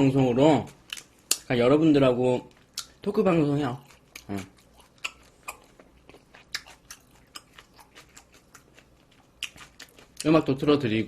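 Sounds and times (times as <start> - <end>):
crisp chewing crunches: 2.4 - 10.6.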